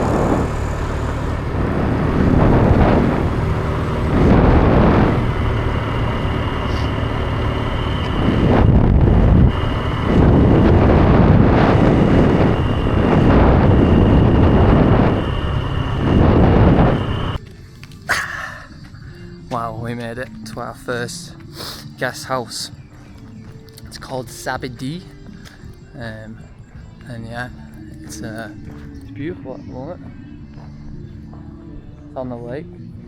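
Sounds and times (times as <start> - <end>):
motorbike engine at speed: 0.0 - 17.4
thin steady whine: 0.0 - 17.4
wind buffeting microphone: 0.0 - 17.4.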